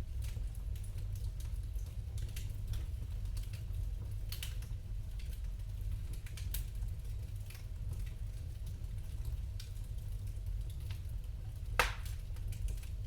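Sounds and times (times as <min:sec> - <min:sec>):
low rumble of fire: 0:00.0 - 0:13.0
fire crackling snaps: 0:04.3 - 0:13.0.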